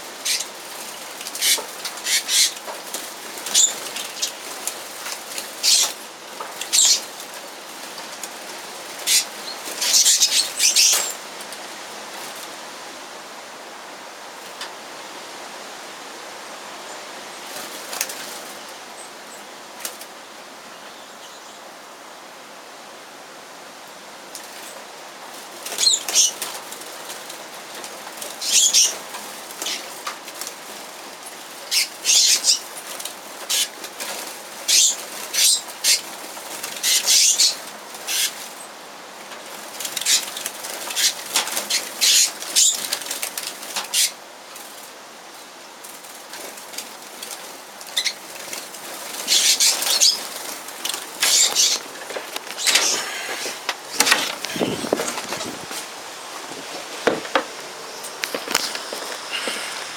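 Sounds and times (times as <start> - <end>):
birds chirping: 0.1 - 2.7, 3.4 - 4.6, 5.4 - 7.4, 9.0 - 11.2, 25.7 - 26.6, 28.2 - 30.0, 31.5 - 32.8, 34.7 - 36.1, 36.7 - 38.4, 47.9 - 59.9
birds wingbeats fluttering: 0.1 - 12.6, 24.4 - 59.9.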